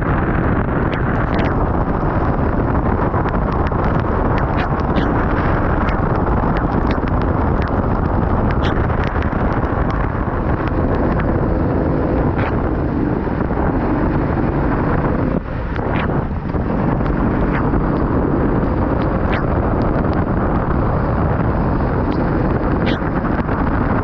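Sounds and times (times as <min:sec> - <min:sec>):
wind noise on microphone: 0:00.0 - 0:24.0
sharp ticks: 0:00.8 - 0:11.4, 0:15.3 - 0:20.6, 0:22.0 - 0:23.7.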